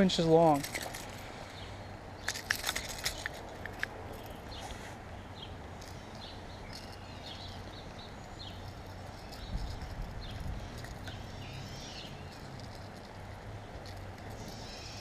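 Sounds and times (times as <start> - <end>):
high bird chirps: 5.4 - 12.5, 14.3 - 15.0.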